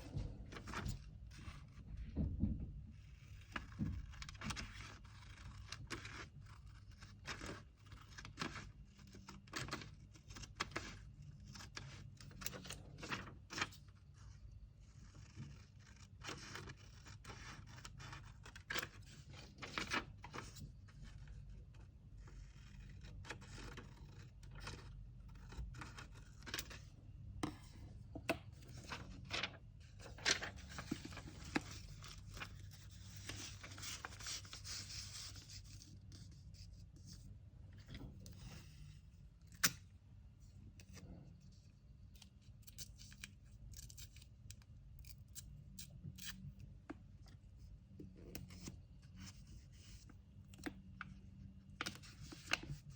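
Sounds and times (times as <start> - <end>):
paper rustling and scraping: 0.0 - 2.0, 3.0 - 21.6, 22.2 - 39.1.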